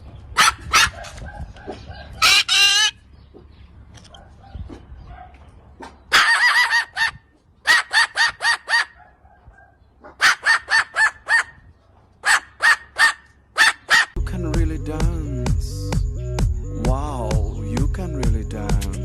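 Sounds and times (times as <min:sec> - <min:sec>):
parrot calling: 0:01.8 - 0:03.1, 0:06.1 - 0:09.0, 0:10.2 - 0:11.6.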